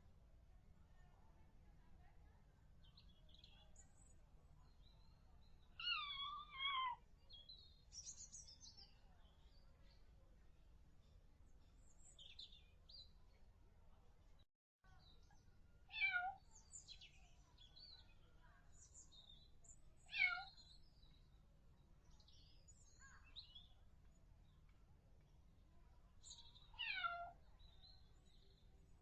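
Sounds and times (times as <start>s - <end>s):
kitten meowing: 5.8s - 7.0s, 16.0s - 16.3s, 20.1s - 20.5s, 26.8s - 27.3s.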